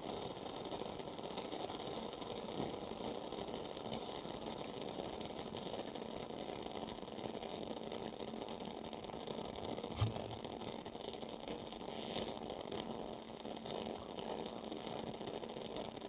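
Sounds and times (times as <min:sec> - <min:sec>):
candle crackling: 0:09.9 - 0:10.7.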